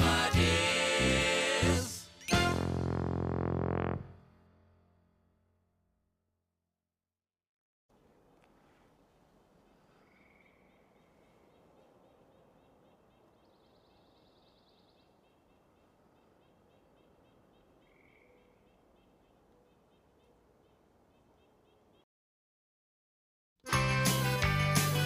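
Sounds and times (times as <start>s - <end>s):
faint bird chirps: 8.0s - 22.1s.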